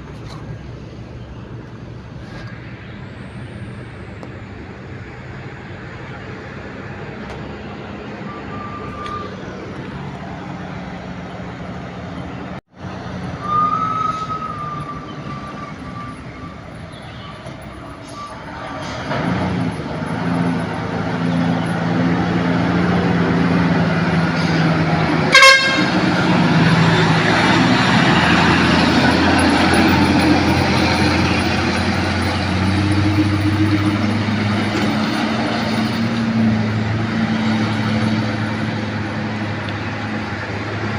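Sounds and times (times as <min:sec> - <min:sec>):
truck diesel engine running: 0:00.0 - 0:40.9
truck horn blast: 0:25.1 - 0:27.2.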